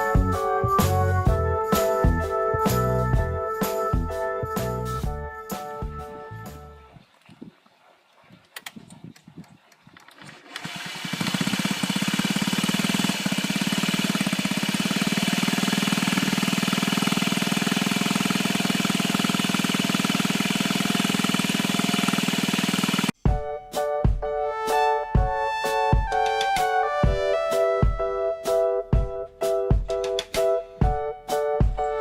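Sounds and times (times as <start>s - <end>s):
scooter engine starting and running: 9.9s - 23.2s.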